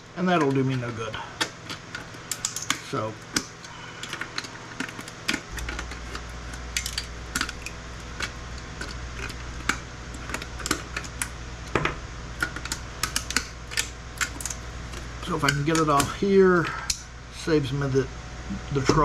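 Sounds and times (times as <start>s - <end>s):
steady low hum: 0.0s - 19.0s
tools clicking on circuit boards: 12.4s - 16.2s.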